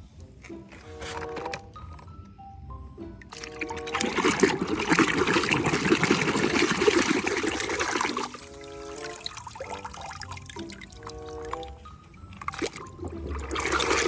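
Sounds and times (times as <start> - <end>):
light background melody: 0.0 - 14.0
water running and splashing: 3.3 - 14.0.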